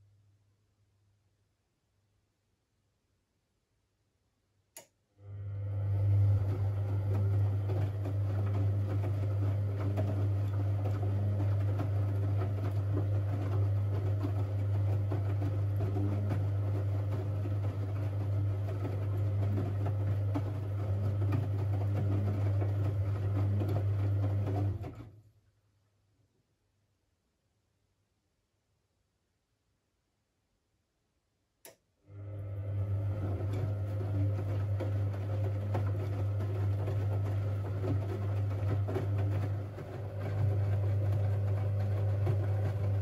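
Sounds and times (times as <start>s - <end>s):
water running through washing machine: 5.2s - 25.2s, 32.1s - 43.0s.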